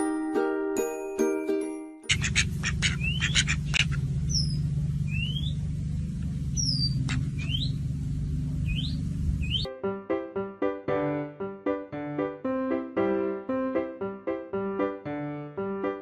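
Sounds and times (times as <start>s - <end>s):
small birds chirping: 2.1s - 7.9s, 8.5s - 9.7s
steady low hum: 2.1s - 9.7s.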